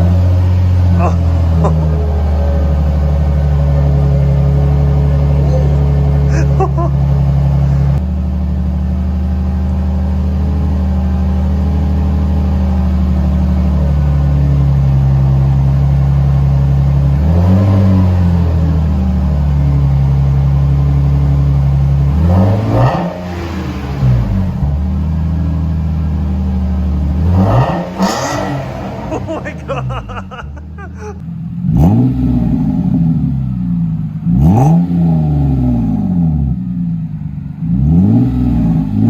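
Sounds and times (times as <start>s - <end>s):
car engine idling and revving: 0.0s - 39.0s.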